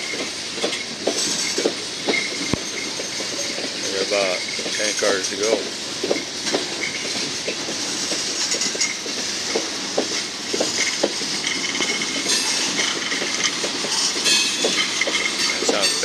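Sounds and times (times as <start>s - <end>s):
train wheels clacking on rails: 0.0s - 16.0s
steady rushing hiss: 0.2s - 16.0s
wheel squeals: 0.7s - 7.3s, 10.6s - 16.0s.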